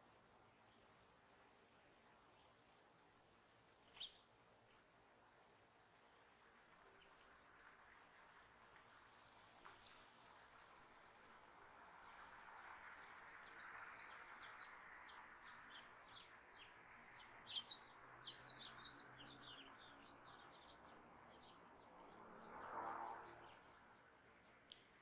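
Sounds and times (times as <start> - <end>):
songbirds chirping: 13.4 - 22.2.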